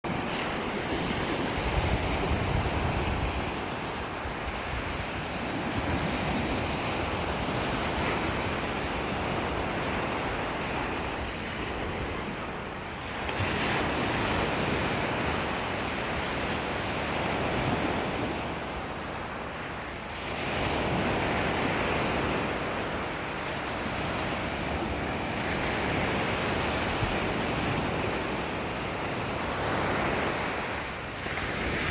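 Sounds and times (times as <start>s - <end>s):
wind on microphone: 0.0s - 19.6s, 20.2s - 31.9s
ocean waves washing on beach: 0.0s - 31.9s.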